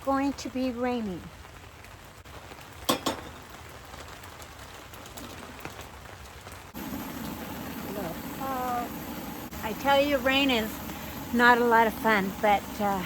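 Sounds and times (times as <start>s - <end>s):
raindrops ticking: 0.0s - 13.0s
steady rain: 0.0s - 13.0s
low steady noise: 6.7s - 13.0s.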